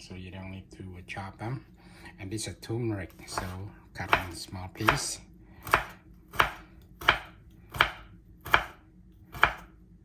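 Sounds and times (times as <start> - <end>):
knife chopping root: 3.2 - 9.7.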